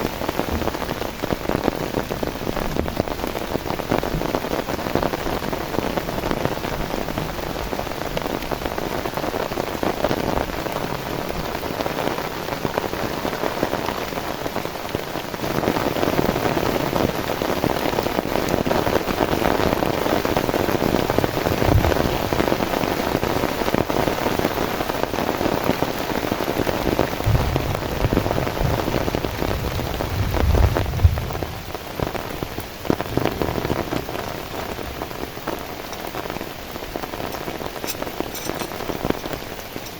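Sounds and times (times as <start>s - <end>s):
heavy rain pattering: 0.0s - 39.9s
low rumbles: 27.2s - 36.1s.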